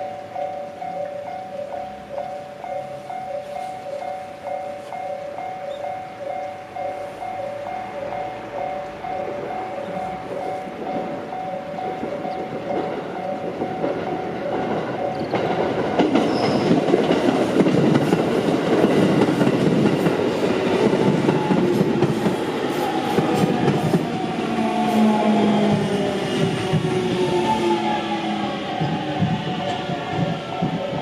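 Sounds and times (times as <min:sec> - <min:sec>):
level crossing alarm ringing: 0:00.0 - 0:31.0
train wheels clacking over rail joints: 0:07.5 - 0:31.0.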